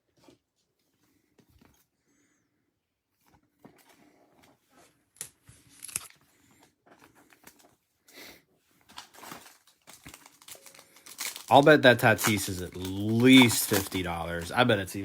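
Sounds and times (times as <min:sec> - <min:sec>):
wrappers rustling and crinkling: 0:08.8 - 0:15.0.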